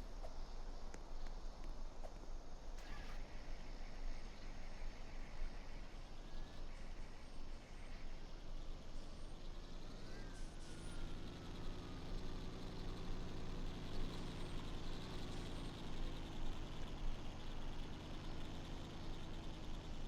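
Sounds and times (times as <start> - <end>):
low truck engine hum: 0.0 - 20.0
trucks running: 7.9 - 20.0.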